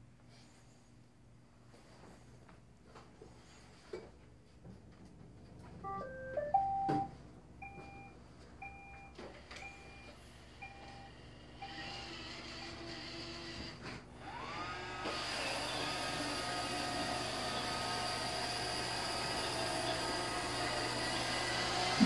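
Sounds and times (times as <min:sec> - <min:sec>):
robot vacuum electronic tones: 0:05.9 - 0:07.1
motor hum: 0:10.6 - 0:22.0.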